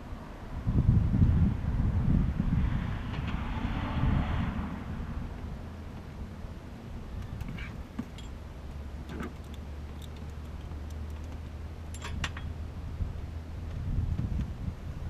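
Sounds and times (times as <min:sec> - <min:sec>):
light metallic clinks: 0:07.4 - 0:12.5.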